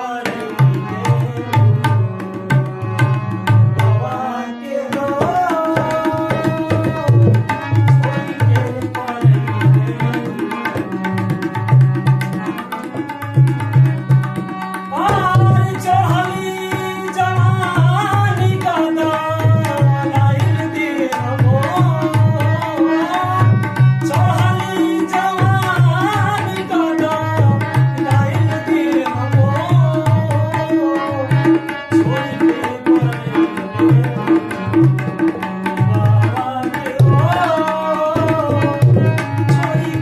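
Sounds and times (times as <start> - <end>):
hand drum rhythm: 5.0 - 40.0.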